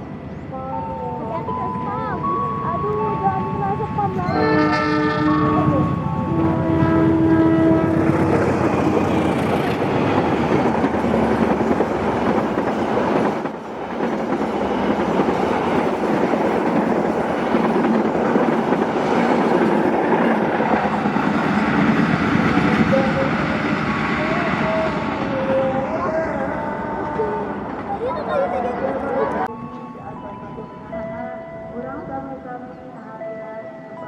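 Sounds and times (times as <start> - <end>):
train wheels rushing on rails: 4.0 - 28.3.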